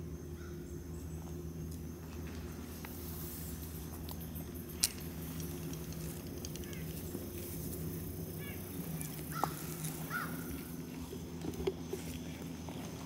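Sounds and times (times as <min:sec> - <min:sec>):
steady low hum: 0:00.0 - 0:13.0
chirping bird calls: 0:06.6 - 0:10.9.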